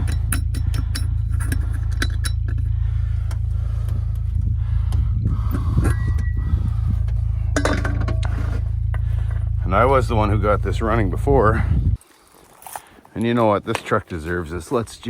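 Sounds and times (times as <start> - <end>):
light clinks and clicks: 0.0 - 4.3
vehicle engine idling: 0.0 - 12.0.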